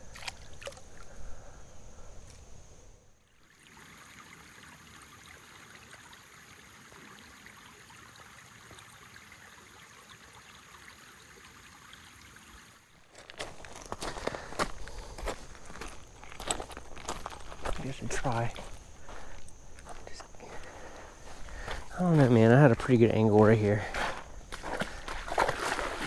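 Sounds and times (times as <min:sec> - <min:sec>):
creek water over rocks: 0:00.0 - 0:01.2, 0:03.3 - 0:26.0
footsteps on stones: 0:13.0 - 0:26.0.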